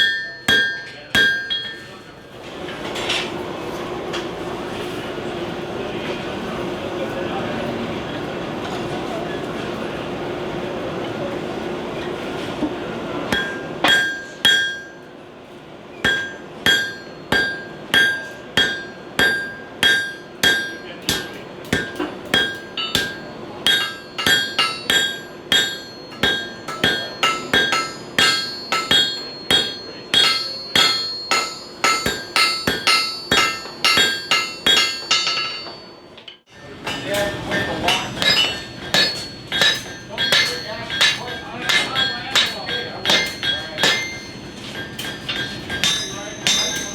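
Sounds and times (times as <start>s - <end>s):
hammer striking iron on anvil: 0.0s - 2.0s, 13.3s - 15.1s, 16.0s - 46.9s.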